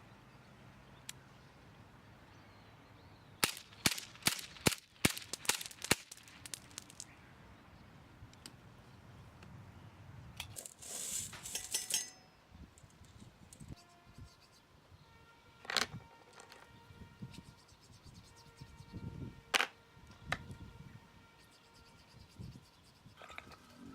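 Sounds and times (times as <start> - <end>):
cap gun shots: 3.4 - 7.0
metallic clatter: 10.4 - 12.3.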